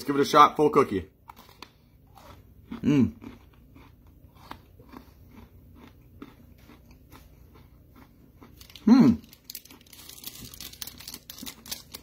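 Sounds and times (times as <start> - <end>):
person chewing cookie: 1.2 - 12.0.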